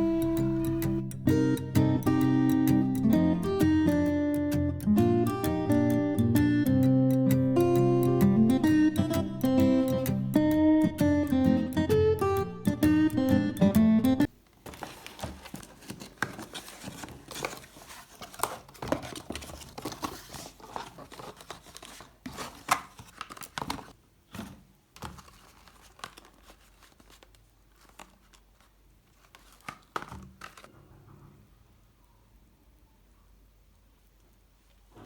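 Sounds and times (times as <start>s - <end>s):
wrapper crinkling and tearing: 14.6s - 30.7s.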